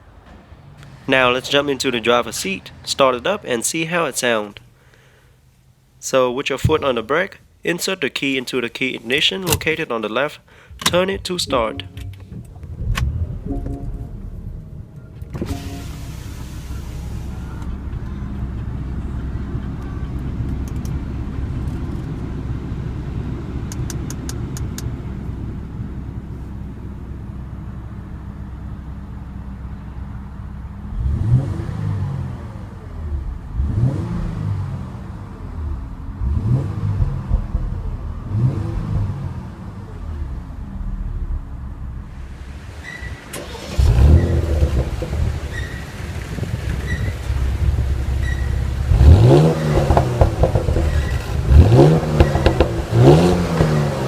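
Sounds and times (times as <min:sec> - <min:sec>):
car engine revving: 0:00.0 - 0:03.6, 0:10.8 - 0:25.8, 0:30.4 - 0:54.0
car engine starting and idling: 0:00.0 - 0:54.0.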